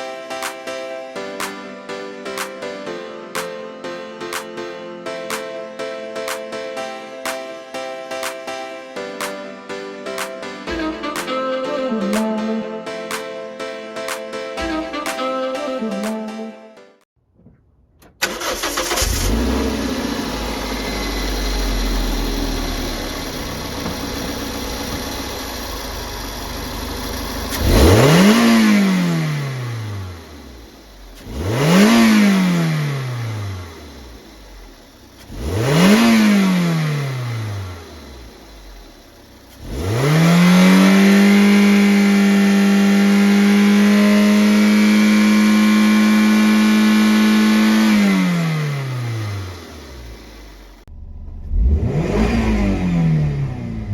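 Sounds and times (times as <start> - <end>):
car engine idling and revving: 18.2 - 53.9.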